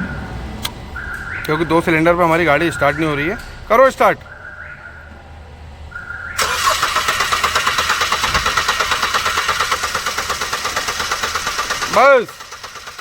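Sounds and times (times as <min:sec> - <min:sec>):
starter motor cranking engine: 0:06.4 - 0:13.0.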